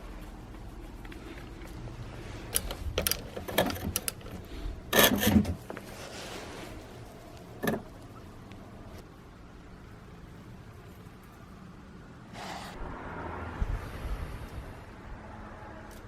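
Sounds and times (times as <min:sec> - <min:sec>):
mechanical clicks and rattles: 0:02.5 - 0:05.6.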